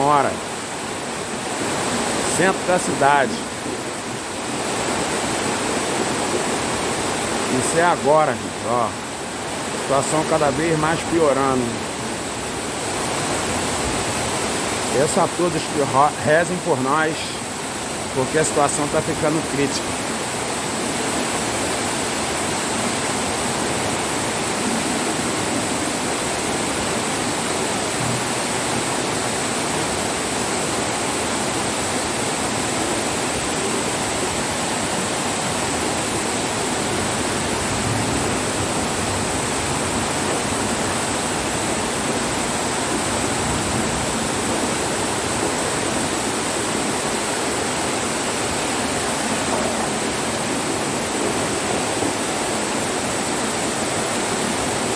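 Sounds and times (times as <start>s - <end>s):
floodwater running in street: 0.0s - 54.9s
torrential rain: 8.3s - 54.9s.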